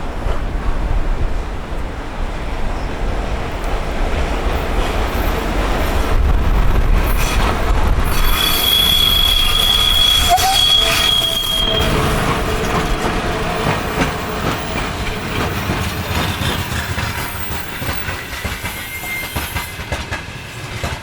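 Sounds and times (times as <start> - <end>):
train rumbling: 0.0 - 21.0
train wheel squeal: 7.1 - 21.0.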